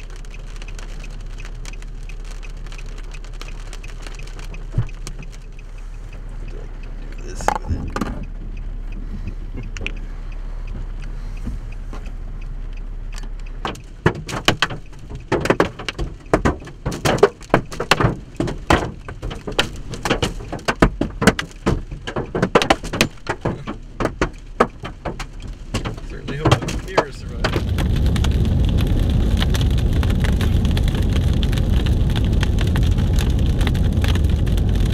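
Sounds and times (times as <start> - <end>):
hailstones striking: 0.0 - 5.6, 13.6 - 34.9
wind-driven rain: 0.0 - 34.9.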